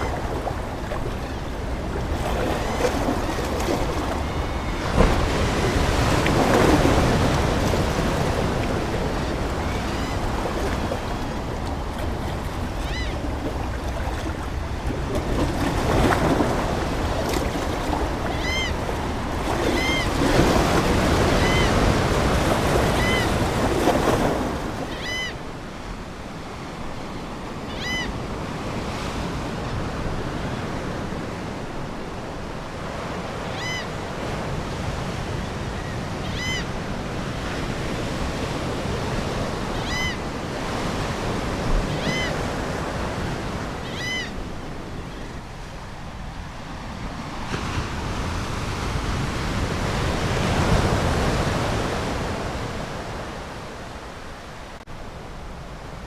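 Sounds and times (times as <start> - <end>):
ocean waves washing ashore: 0.0 - 56.0
seagull calls: 8.2 - 14.2, 18.0 - 22.0, 22.8 - 23.4, 24.8 - 25.4, 27.7 - 28.2, 35.8 - 36.7, 39.8 - 40.2, 41.9 - 42.5, 43.8 - 44.4.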